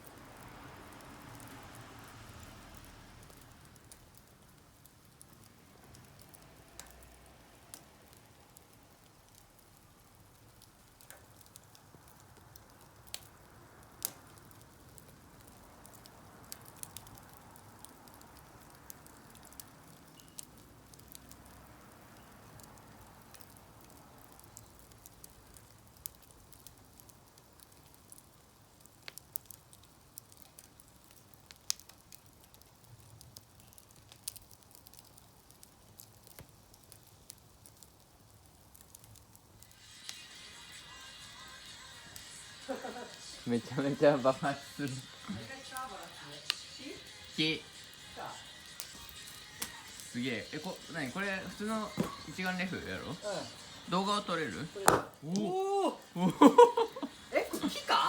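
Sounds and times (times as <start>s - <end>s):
campfire crackling: 0.0s - 58.0s
low steady hiss: 0.0s - 58.0s
sharp pops: 47.4s - 55.5s.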